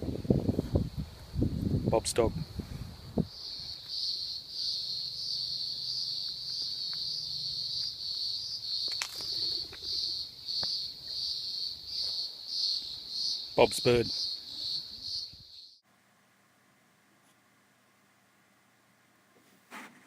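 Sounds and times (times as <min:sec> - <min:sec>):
cricket chirping: 0:00.0 - 0:15.8.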